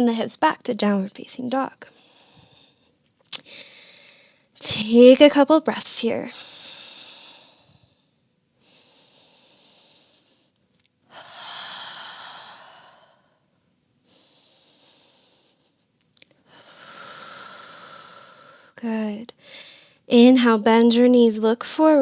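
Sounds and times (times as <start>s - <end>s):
woman breathing slowly: 1.9s - 4.6s, 6.3s - 20.1s.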